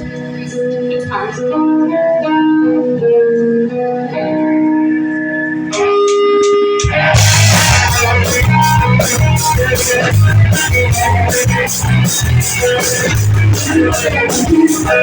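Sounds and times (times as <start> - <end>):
live band playing: 0.0 - 15.0
drums and bass: 5.7 - 15.0.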